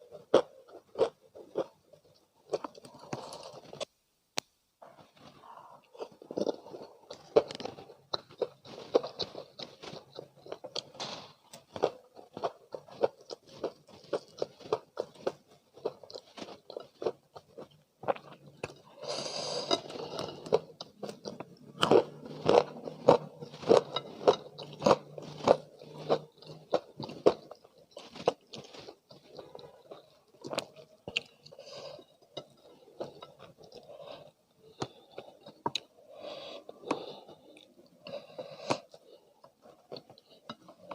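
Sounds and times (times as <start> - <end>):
chewing with wet mouth sounds: 0.0 - 3.9, 5.8 - 40.9
crunching fried chicken: 5.2 - 33.8.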